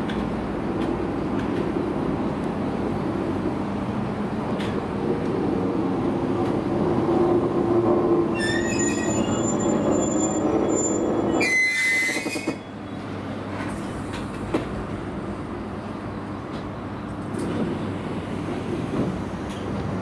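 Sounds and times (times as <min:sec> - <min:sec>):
electric train rumbling on rails: 0:00.0 - 0:20.0
high-pitched wheel squeal: 0:08.3 - 0:12.7.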